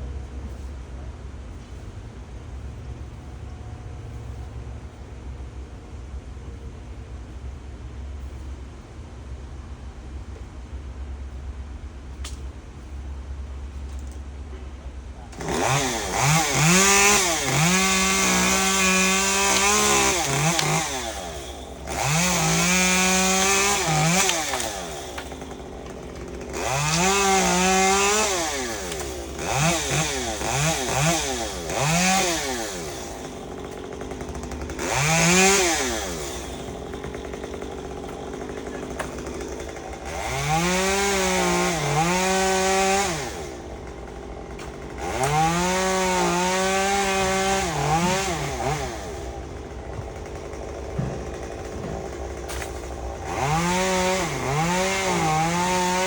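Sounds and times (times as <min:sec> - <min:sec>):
chainsaw revving through wood: 0:15.3 - 0:56.0.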